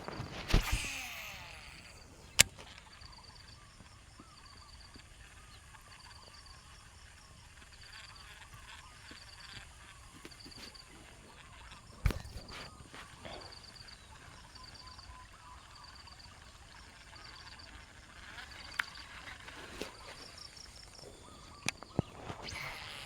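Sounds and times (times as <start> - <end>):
sharp click: 0.0 - 3.0
insects chirping in trills: 0.0 - 23.0
faint wavering calls: 7.6 - 23.0.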